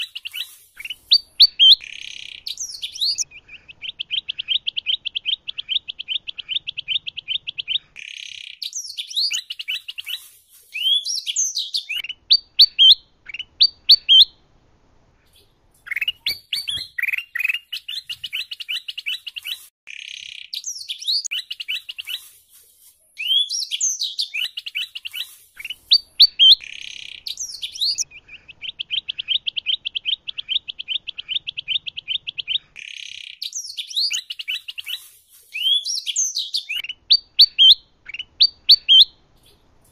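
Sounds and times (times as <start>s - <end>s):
canary trills: 0.0s - 14.3s, 15.3s - 22.4s
bulbul whistles and chirps: 0.0s - 14.4s, 15.4s - 22.3s, 23.2s - 39.2s.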